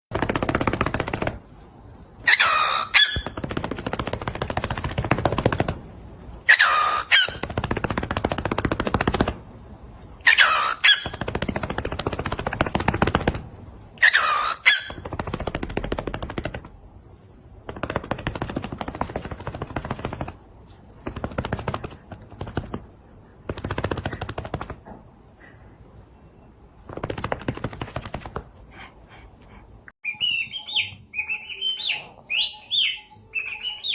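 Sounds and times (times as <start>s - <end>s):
parrot squeak and rattle call: 2.2s - 3.4s, 6.5s - 7.5s, 10.2s - 11.2s, 14.0s - 15.0s.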